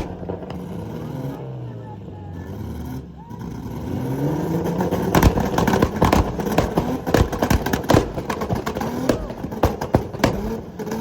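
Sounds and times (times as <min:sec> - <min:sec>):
exhaust pops and bangs: 0:00.0 - 0:01.4, 0:04.6 - 0:11.0
car engine revving: 0:00.0 - 0:11.0.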